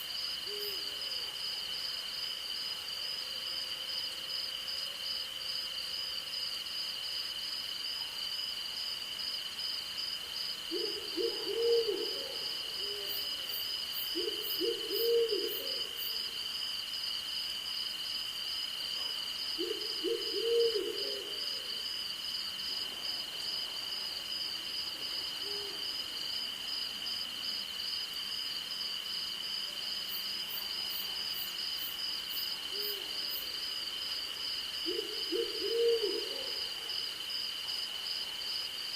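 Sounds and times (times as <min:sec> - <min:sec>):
owl hooting: 0:10.7 - 0:13.1, 0:14.2 - 0:15.9, 0:19.6 - 0:21.6, 0:34.8 - 0:36.7.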